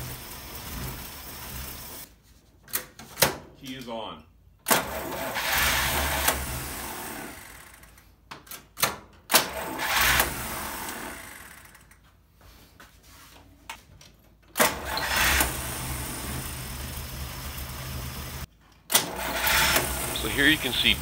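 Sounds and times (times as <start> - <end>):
engine cranking on starter: 4.7 - 8.0, 9.3 - 11.9, 14.6 - 21.0.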